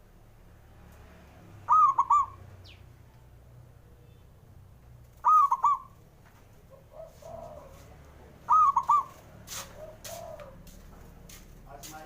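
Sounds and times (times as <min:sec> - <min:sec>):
dove cooing: 0:01.6 - 0:02.8, 0:05.1 - 0:06.0, 0:06.6 - 0:10.8.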